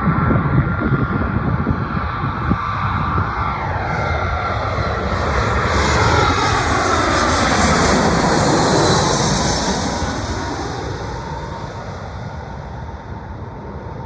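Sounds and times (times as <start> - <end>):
jet airliner passing overhead: 0.0 - 14.0.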